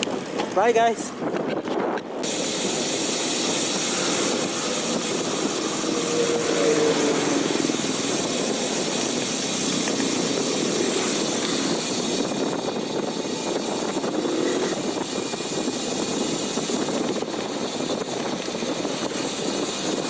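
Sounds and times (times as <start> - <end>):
wind rushing over microphone: 0.0 - 20.0
faint passing engine hum: 2.3 - 11.8.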